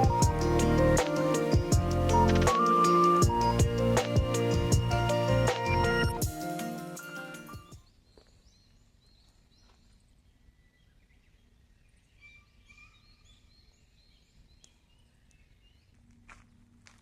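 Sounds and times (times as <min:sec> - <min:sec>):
bird chirps and whistled calls: 0:12.1 - 0:15.4.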